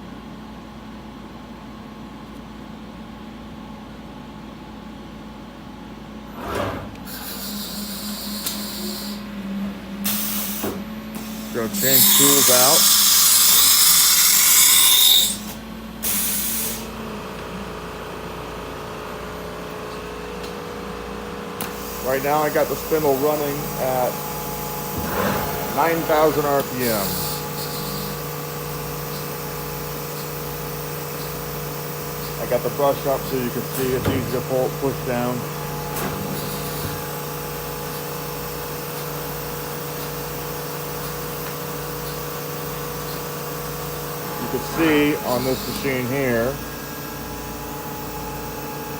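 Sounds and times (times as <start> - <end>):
compressed air hissing: 7.1 - 9.3, 10.1 - 16.9, 21.6 - 39.3, 40.8 - 47.0
spindle humming: 21.2 - 39.3, 41.9 - 48.9
noisy hiss: 21.8 - 28.2, 32.1 - 37.1, 44.2 - 46.6.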